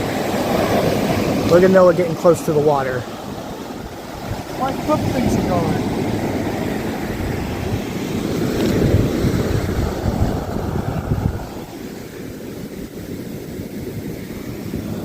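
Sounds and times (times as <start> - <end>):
ocean surf on beach: 0.0 - 15.0
wind buffeting microphone: 0.0 - 15.0.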